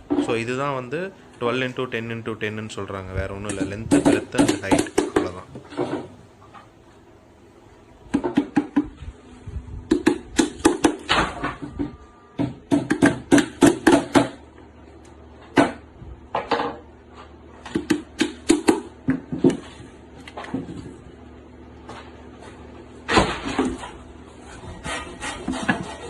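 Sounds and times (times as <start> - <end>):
hammer striking nails into wood: 12.4 - 14.4.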